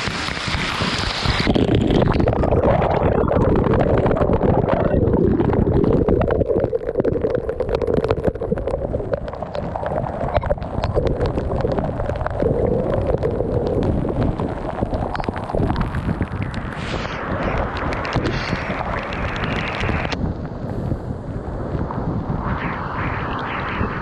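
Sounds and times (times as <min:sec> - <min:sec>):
small clicks and pops: 0:00.0 - 0:20.6
water rushing and gurgling: 0:00.0 - 0:24.0.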